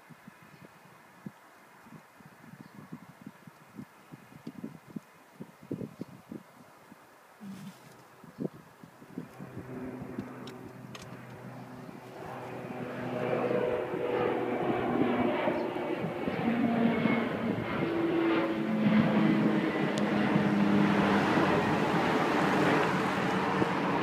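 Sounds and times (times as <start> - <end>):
aircraft engines running: 7.4 - 24.0.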